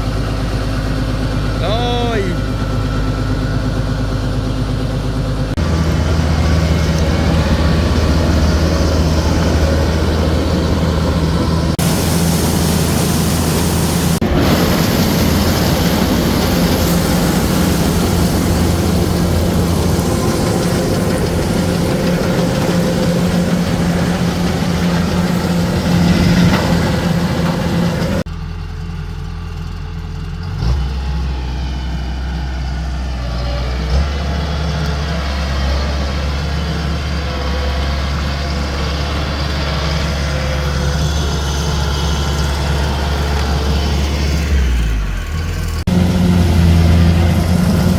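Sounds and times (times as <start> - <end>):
machinery clatter: 0.0 - 28.3
harvesting machine engine drone: 0.0 - 47.9.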